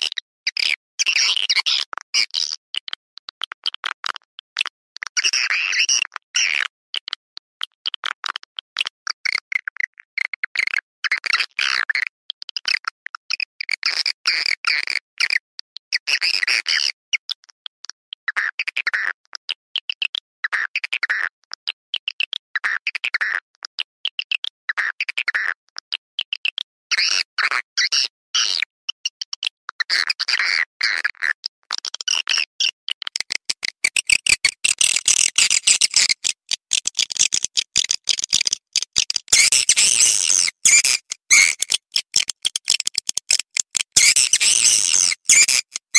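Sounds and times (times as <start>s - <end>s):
swiftlet twittering chirps and clicks: 33.1s - 45.9s.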